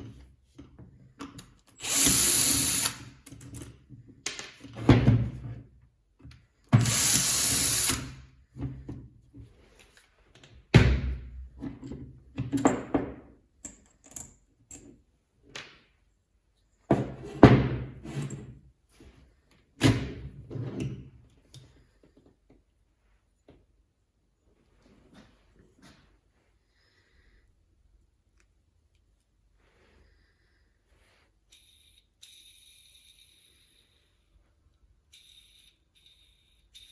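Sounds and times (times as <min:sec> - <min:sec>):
power tool motor burst: 0:01.8 - 0:03.0, 0:06.8 - 0:08.1.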